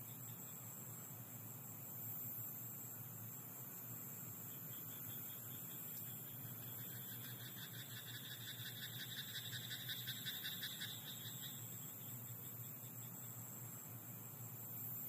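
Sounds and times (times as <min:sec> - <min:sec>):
steady high-pitched hiss: 0:00.0 - 0:15.0
frogs croaking: 0:03.6 - 0:15.0.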